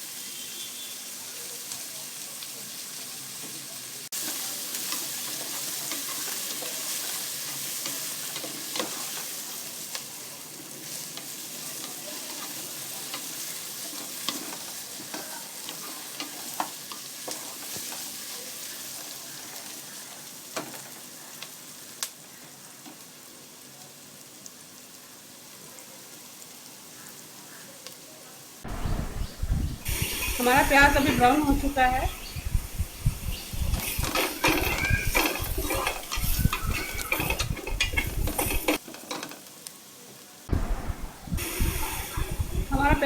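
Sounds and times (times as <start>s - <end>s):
onions sizzling in hot oil: 0.0s - 43.0s
spatula scraping a pot: 33.8s - 38.8s.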